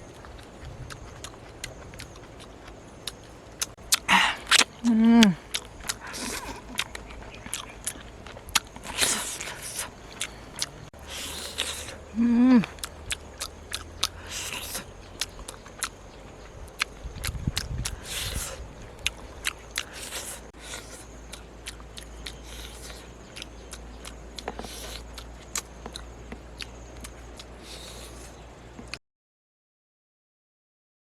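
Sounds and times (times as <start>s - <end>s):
person chewing and lip-smacking: 0.0s - 28.4s
person humming: 4.0s - 6.7s, 11.2s - 12.9s.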